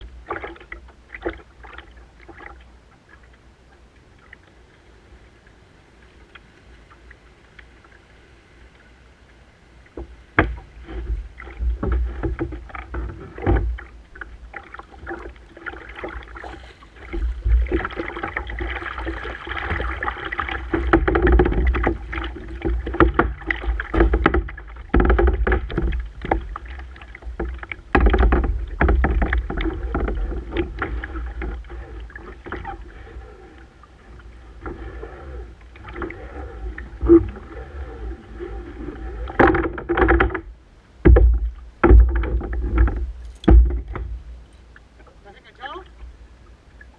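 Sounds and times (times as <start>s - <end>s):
water splashing around paddle: 0.0s - 4.9s, 8.7s - 46.9s
knocks on kayak: 10.4s - 10.7s, 41.0s - 44.2s.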